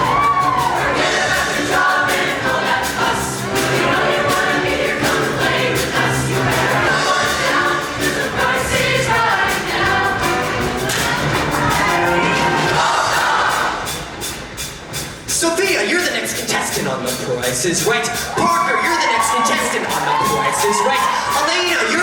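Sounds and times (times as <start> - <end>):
choir singing in harmony: 0.0 - 14.4
band accompaniment with steady beat: 0.0 - 22.0.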